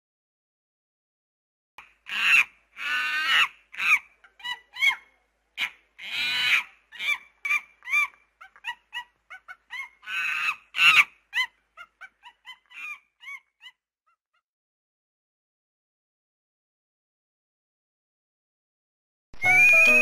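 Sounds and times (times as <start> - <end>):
animal cries: 2.1 - 13.8
squeaky animal calls: 19.4 - 20.0.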